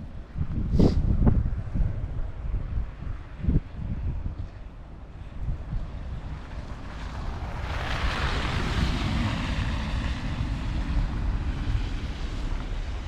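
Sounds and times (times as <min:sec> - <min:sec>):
wind rumble on microphone: 0:00.0 - 0:13.0
car tyres hissing on snow: 0:00.6 - 0:01.1, 0:05.2 - 0:13.0.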